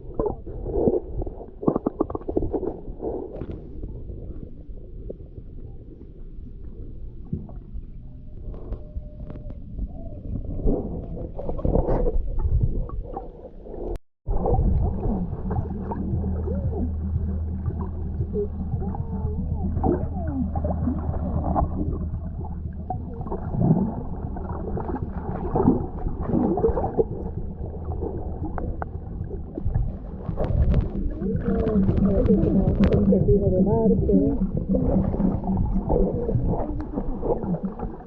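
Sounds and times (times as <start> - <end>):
water gurgling: 0.0 - 38.0
boat motor humming: 14.3 - 38.0
wavering tones: 14.4 - 38.0.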